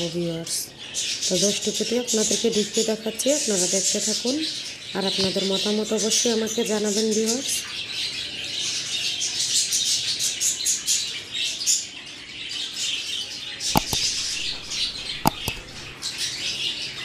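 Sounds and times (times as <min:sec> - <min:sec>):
small birds chirping: 0:00.0 - 0:17.0
sharp knocks: 0:13.7 - 0:15.9.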